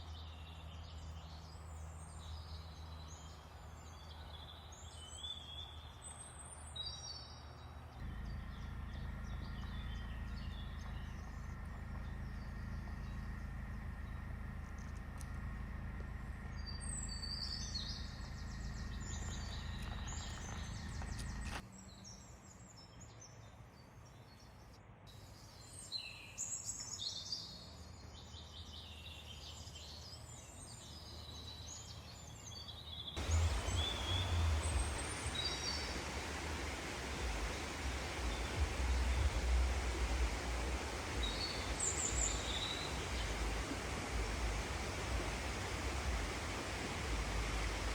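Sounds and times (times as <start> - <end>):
small birds chirping: 0.0 - 23.2, 23.8 - 47.9
low hum: 7.9 - 21.6, 33.2 - 47.9
steady rushing noise: 33.2 - 47.9.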